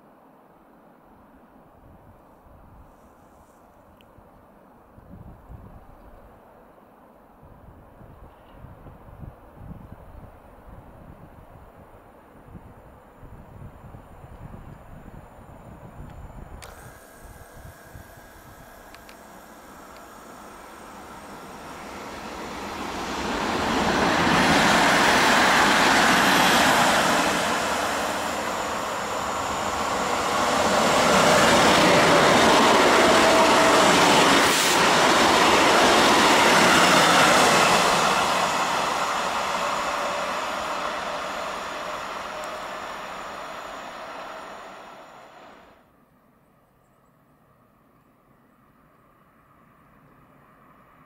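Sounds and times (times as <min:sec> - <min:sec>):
train wheel and rail noise: 0:00.0 - 0:45.9.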